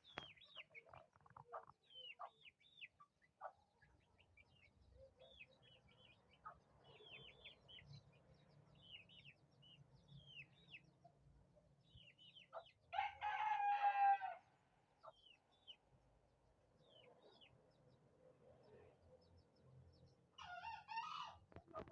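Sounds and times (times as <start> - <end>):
small birds chirping: 0.0 - 13.1, 14.4 - 21.9
rooster crowing: 12.9 - 14.4.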